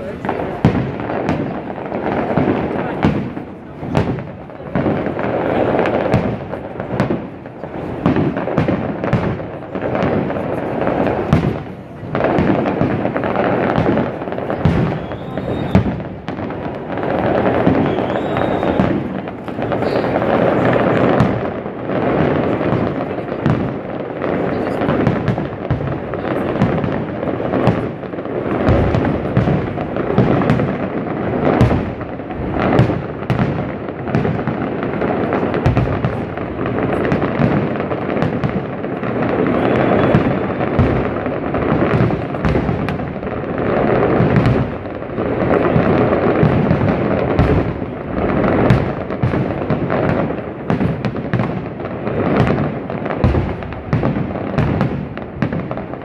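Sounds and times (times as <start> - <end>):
fireworks barrage: 0.0 - 56.0.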